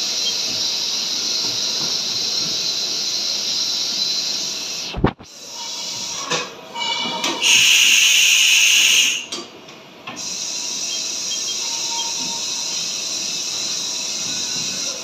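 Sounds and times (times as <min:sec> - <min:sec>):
loud hiss: 0:07.4 - 0:09.3.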